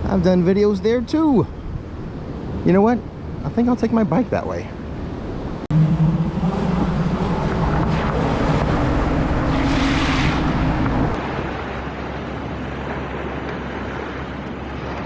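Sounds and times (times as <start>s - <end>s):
ocean surf: 0.0s - 15.0s
low steady hum: 4.6s - 13.4s
wind on microphone: 4.6s - 15.0s.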